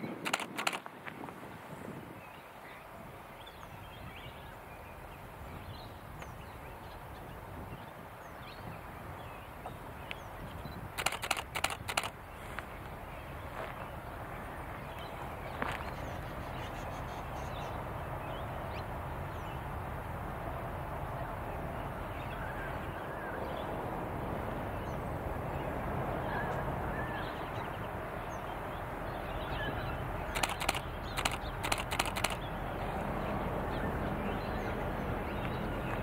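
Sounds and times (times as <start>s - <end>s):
birds chirping: 0.0s - 0.8s, 1.9s - 19.7s, 24.7s - 36.0s
diesel locomotives rumbling: 9.7s - 36.0s
harsh sharp calls: 11.0s - 12.1s, 30.4s - 32.4s.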